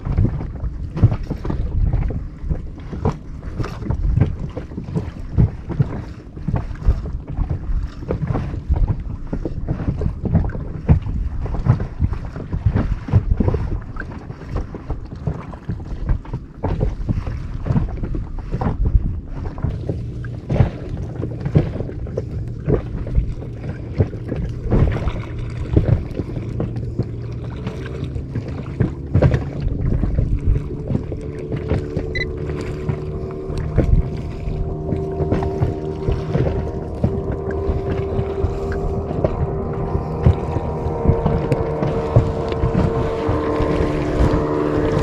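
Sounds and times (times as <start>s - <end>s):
water slapping inflatable boat: 0.0s - 45.0s
wind buffeting microphone: 0.0s - 45.0s
low steady drone: 19.6s - 45.0s
engine tone: 19.7s - 45.0s.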